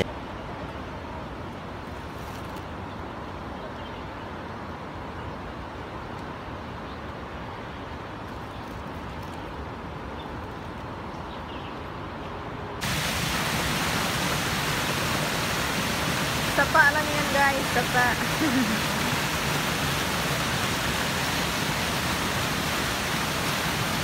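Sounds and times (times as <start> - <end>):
rain hissing: 12.8 - 24.0.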